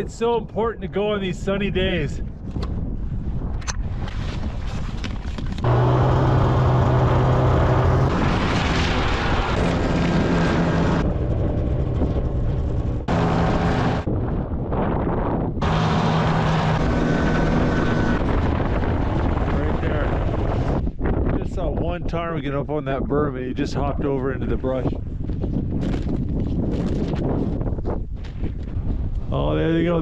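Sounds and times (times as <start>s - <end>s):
engine running: 5.6s - 14.1s, 15.6s - 20.8s.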